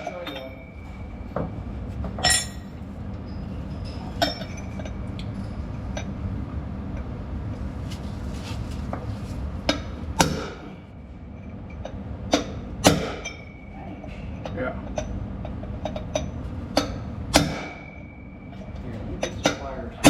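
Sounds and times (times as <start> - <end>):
steady low hum: 0.0 - 20.0
hammer striking metal: 9.7 - 10.8, 12.3 - 13.6, 16.8 - 18.4.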